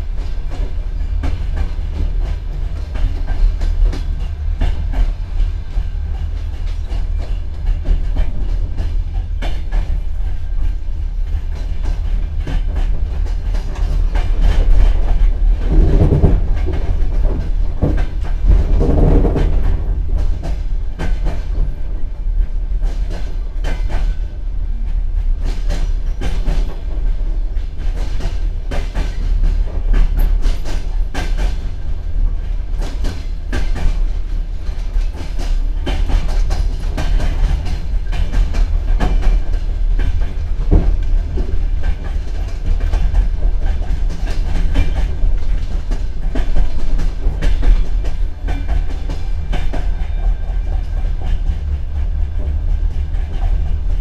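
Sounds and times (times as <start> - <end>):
train rumble: 0.0 - 54.0
wheels clacking over rail joints: 0.0 - 54.0.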